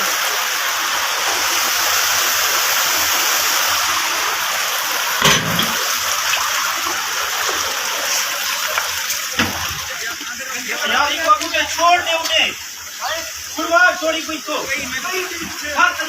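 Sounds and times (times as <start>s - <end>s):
floodwater rushing: 0.0s - 16.0s
dull thump: 5.2s - 5.9s.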